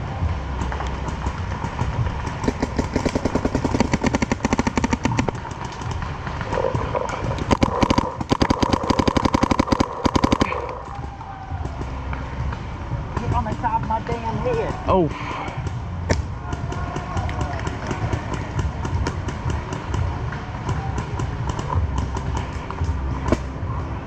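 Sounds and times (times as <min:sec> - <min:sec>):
paintball markers firing rapidly: 0:00.6 - 0:11.1, 0:15.6 - 0:23.6.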